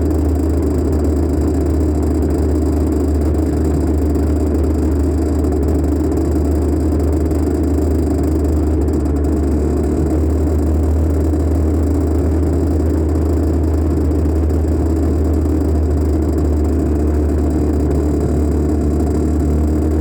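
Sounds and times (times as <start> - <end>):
dirt bike engine droning: 0.0 - 20.0
heavy low rumble: 16.6 - 20.0.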